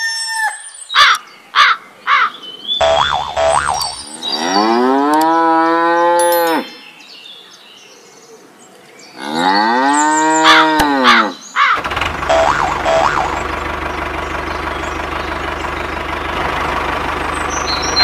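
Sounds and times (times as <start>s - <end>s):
bird chirps: 0.5s - 13.5s, 17.4s - 18.0s
cow mooing: 3.0s - 6.7s, 9.2s - 11.3s.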